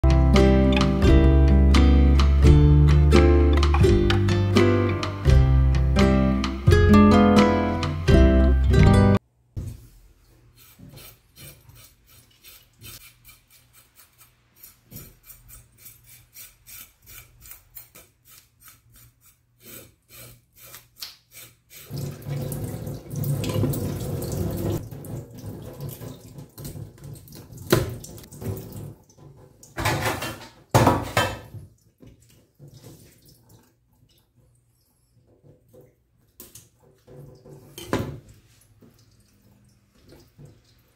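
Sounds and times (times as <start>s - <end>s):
knife scraping fish scales: 10.5s - 22.0s
water splashing: 21.9s - 29.8s.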